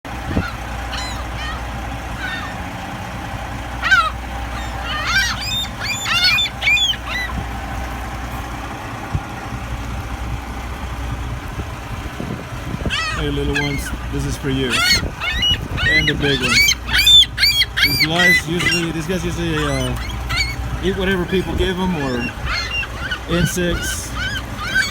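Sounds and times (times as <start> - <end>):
seagulls calling: 0.1 - 24.9
steady low rumble: 0.1 - 24.9.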